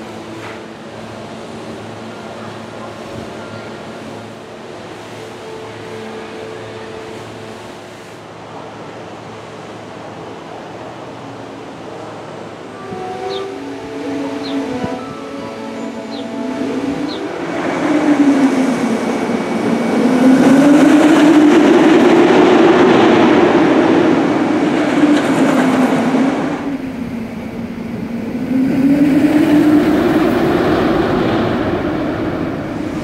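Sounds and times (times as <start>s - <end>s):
roller coaster wheels rumbling: 12.9s - 33.0s.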